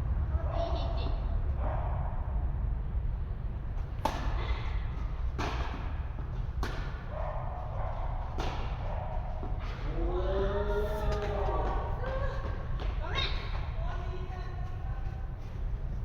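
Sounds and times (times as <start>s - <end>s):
steady low hum: 0.0s - 16.0s
tennis ball struck and bouncing: 4.0s - 7.1s, 8.2s - 9.8s.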